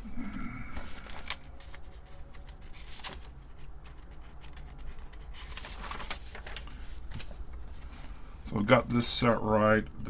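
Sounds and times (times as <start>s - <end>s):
rustling: 0.8s - 8.3s.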